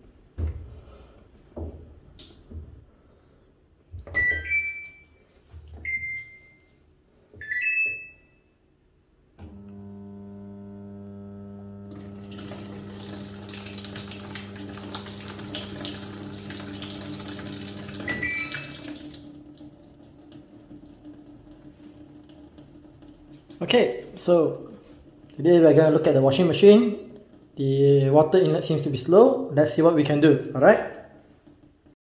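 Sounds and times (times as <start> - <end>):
washing machine panel beeps: 4.1 - 5.2, 5.8 - 6.8, 7.4 - 8.5, 16.8 - 19.2
steady electric hum: 9.1 - 31.3
water rushing into machine: 11.8 - 27.6.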